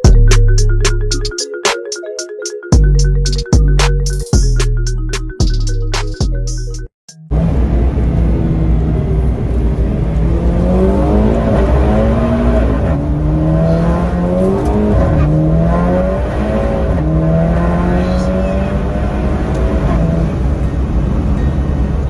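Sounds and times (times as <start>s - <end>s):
car engine accelerating: 7.3s - 22.0s.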